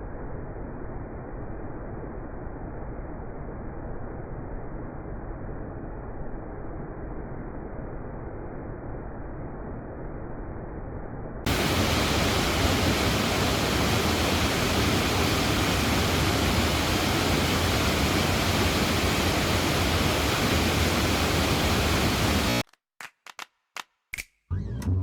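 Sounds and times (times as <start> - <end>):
waterfall rushing: 11.5 - 22.6.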